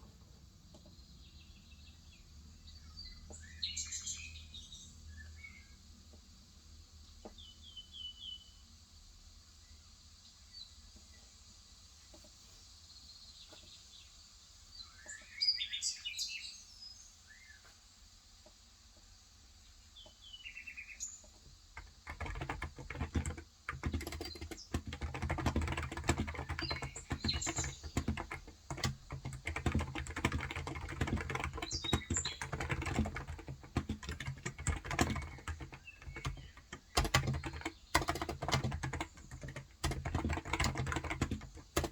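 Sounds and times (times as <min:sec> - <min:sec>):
small birds chirping: 0:00.6 - 0:05.8, 0:12.0 - 0:17.7, 0:19.7 - 0:41.9
fast typing on keyboard: 0:21.8 - 0:41.9.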